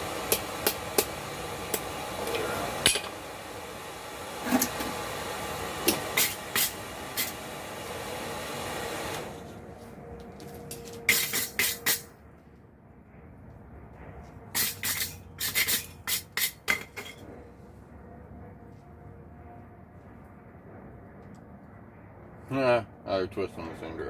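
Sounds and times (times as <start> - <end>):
forge hissing: 0.0 - 9.5.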